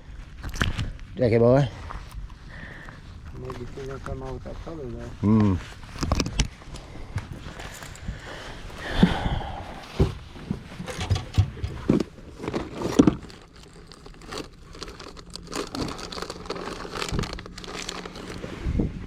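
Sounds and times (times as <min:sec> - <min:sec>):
rustling and crinkling: 0:00.0 - 0:08.9, 0:09.7 - 0:19.0
knocks and thumps: 0:10.0 - 0:12.1.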